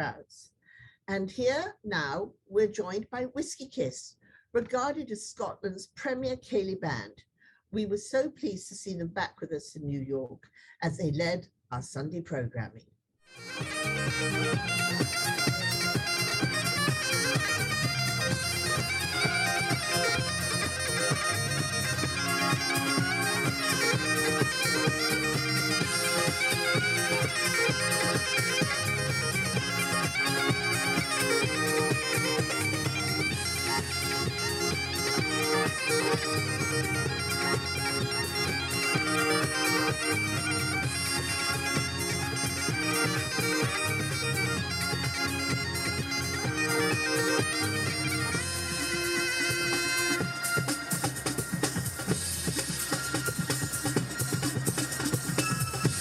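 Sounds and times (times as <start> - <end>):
bagpipes playing: 13.3 - 51.8.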